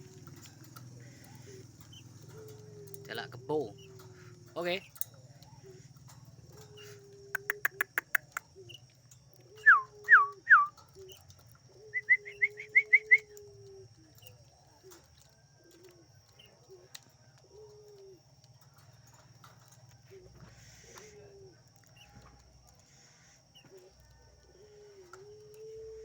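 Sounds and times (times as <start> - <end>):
doves cooing: 0.0 - 26.0
sharp clicks: 7.3 - 9.5.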